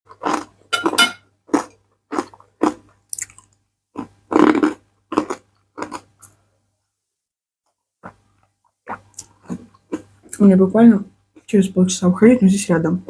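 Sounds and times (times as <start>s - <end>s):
chewing and crunching food: 0.1s - 6.4s, 8.0s - 10.5s.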